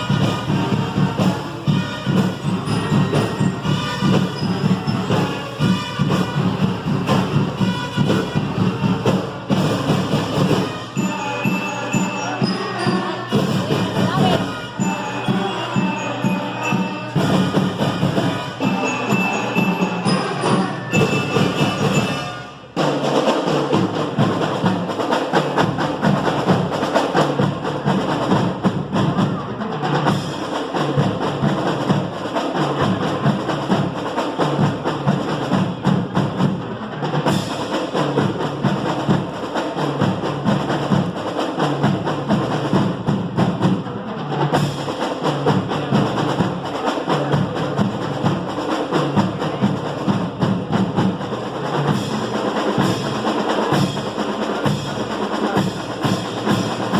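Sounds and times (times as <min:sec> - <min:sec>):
pitched instruments playing: 0:00.0 - 0:22.9
marching drumline cadence: 0:00.0 - 0:56.9.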